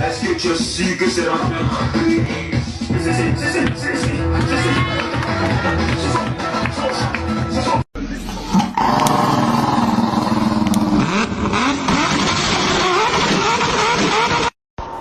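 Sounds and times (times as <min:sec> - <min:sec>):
vehicle engine revving: 0:08.7 - 0:14.6.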